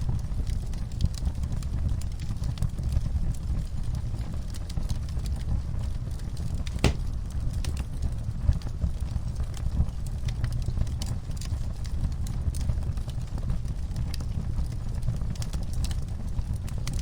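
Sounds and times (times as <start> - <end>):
wood fire crackling and popping: 6.6 - 7.4.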